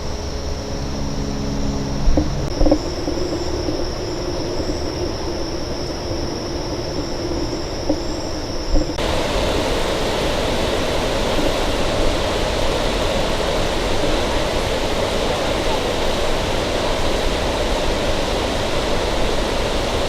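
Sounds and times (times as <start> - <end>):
low rumble: 0.0 - 15.0
high steady whine: 0.0 - 20.0.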